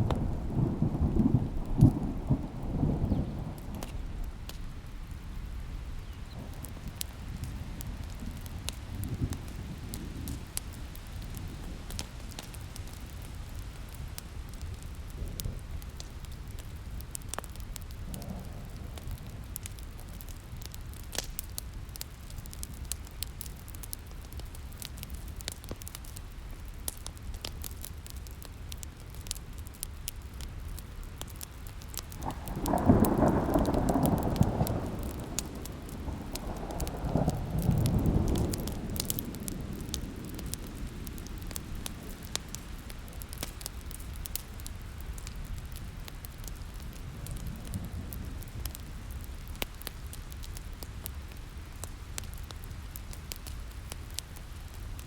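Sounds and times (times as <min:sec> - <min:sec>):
thunder rumbling: 0:00.0 - 0:13.0, 0:32.2 - 0:44.4
rain hiss: 0:00.0 - 0:55.0
wood fire crackling and popping: 0:00.0 - 0:55.0.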